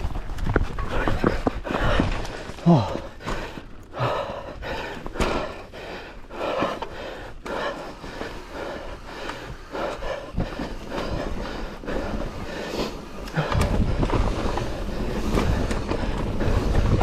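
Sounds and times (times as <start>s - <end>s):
mountain bike rattling over rocks: 0.0s - 3.9s, 10.6s - 17.0s.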